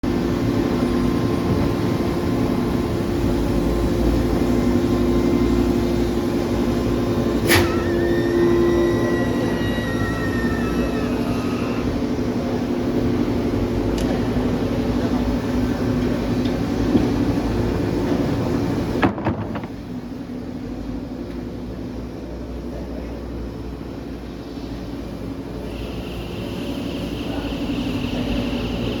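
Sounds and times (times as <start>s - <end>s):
machinery humming: 0.0s - 29.0s.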